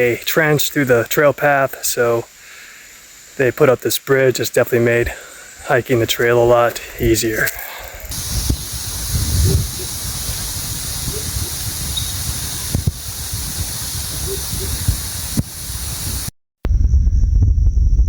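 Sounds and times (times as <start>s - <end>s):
insects hissing: 0.0s - 16.3s
footsteps on trail: 5.9s - 16.2s
low rumble: 16.7s - 18.0s.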